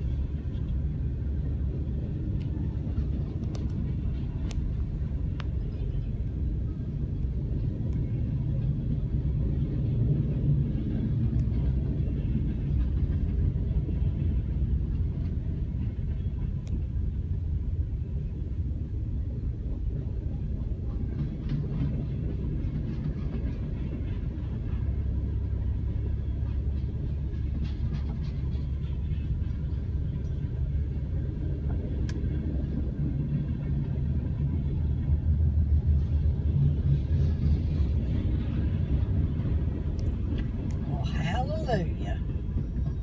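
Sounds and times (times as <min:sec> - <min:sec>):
muffled freight train rumble: 0:00.0 - 0:43.0
faint clicking: 0:03.4 - 0:03.8, 0:04.4 - 0:05.6, 0:32.0 - 0:32.3.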